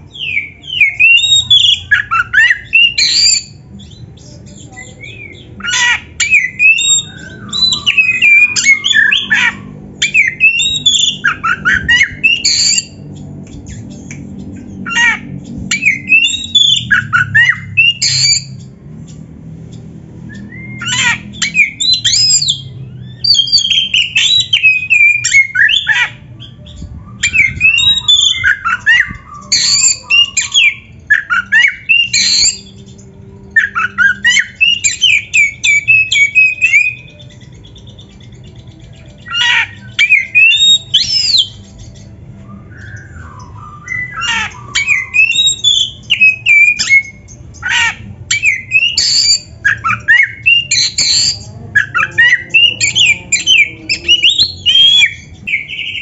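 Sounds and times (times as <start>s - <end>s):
bird singing whistles and chatter: 0.0s - 19.2s, 19.8s - 56.0s.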